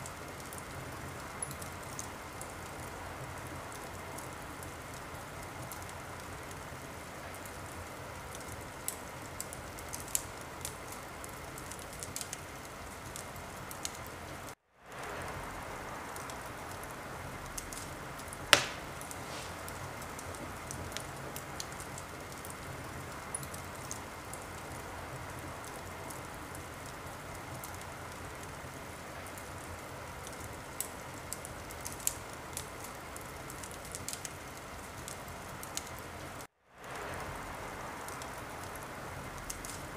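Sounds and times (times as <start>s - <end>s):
wood fire crackling: 0.0s - 39.9s
loud pop of fire: 18.5s - 20.3s.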